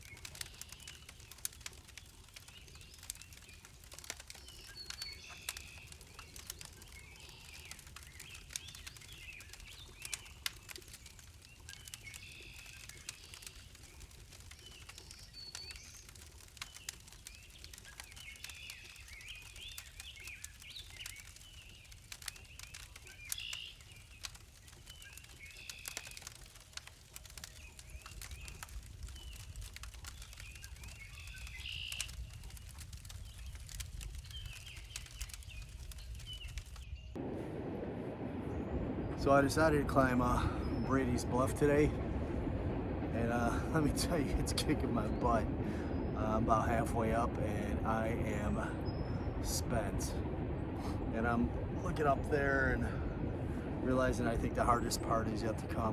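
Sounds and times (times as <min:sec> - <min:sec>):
songbirds chirping: 0:00.0 - 0:37.4, 0:38.1 - 0:55.9
low rumble: 0:32.1 - 0:55.9.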